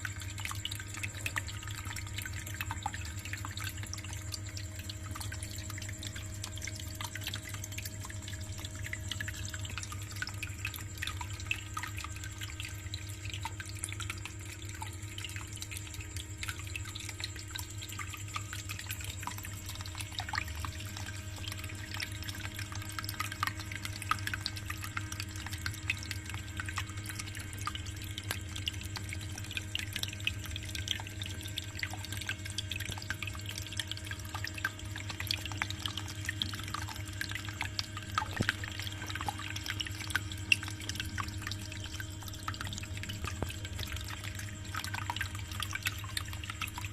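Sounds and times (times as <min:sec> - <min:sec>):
pump hum: 0:00.0 - 0:46.9
water trickling and dripping: 0:00.0 - 0:46.9.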